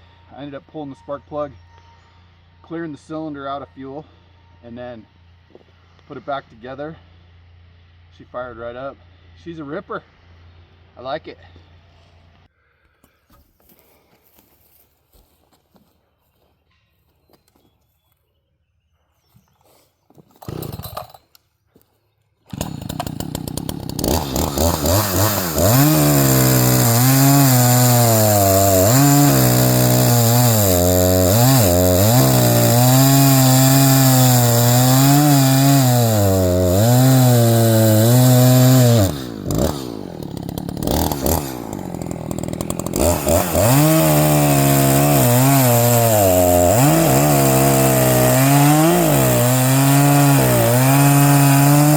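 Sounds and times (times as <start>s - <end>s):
chainsaw running: 7.0s - 8.2s, 20.3s - 21.4s, 22.5s - 51.9s.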